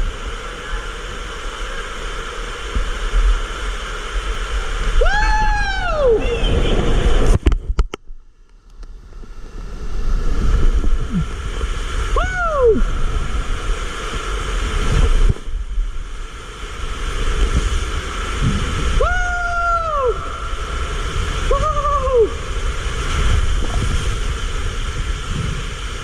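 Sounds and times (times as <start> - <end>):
water rushing in tube slide: 0.0 - 7.8, 9.0 - 26.0
person crying out: 5.0 - 6.7, 12.1 - 13.0, 19.0 - 20.6, 21.4 - 22.5.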